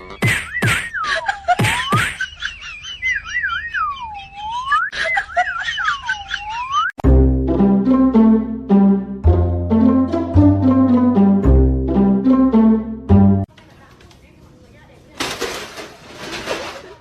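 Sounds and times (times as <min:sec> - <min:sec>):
orchestral music: 0:07.0 - 0:13.5.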